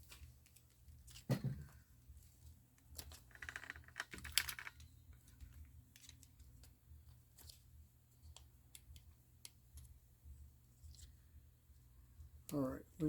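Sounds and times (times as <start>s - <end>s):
plastic film crinkling: 2.0s - 7.7s.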